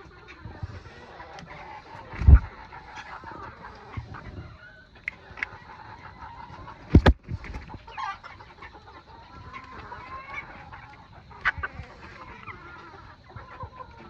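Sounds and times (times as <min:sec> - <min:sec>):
chickens clucking: 0:00.0 - 0:14.0
loud thumps: 0:06.9 - 0:07.4.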